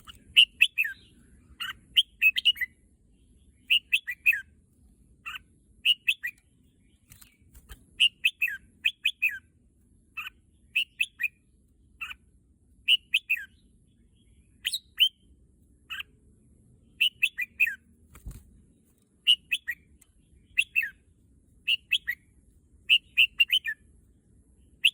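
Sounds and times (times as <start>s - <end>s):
bulbul singing: 0.0s - 4.5s, 5.2s - 9.5s, 10.2s - 11.4s, 12.8s - 15.3s, 16.8s - 17.8s, 19.2s - 21.0s, 21.6s - 23.8s.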